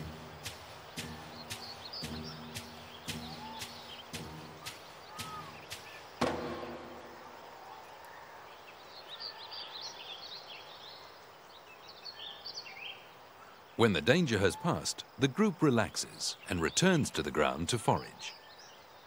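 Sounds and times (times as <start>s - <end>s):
small birds chirping: 0.0s - 19.0s
loud knock: 6.2s - 7.6s.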